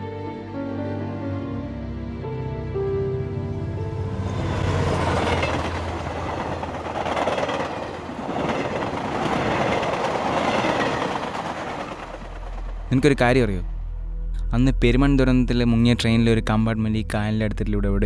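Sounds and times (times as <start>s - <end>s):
train wheels rumbling on rails: 4.2s - 13.7s.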